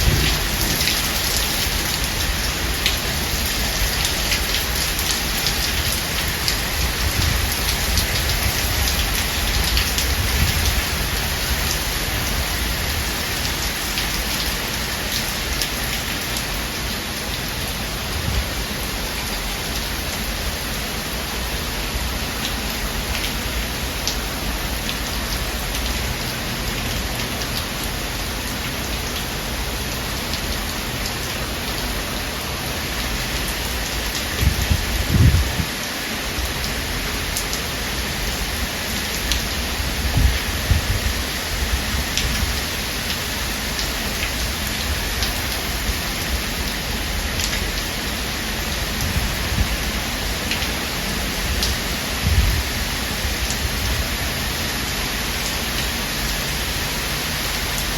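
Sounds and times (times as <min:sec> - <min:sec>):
low thunder rumble: 0:00.0 - 0:02.4, 0:34.3 - 0:35.7
heavy rain falling: 0:00.0 - 0:57.9
raindrops pattering on surfaces: 0:00.0 - 0:57.9.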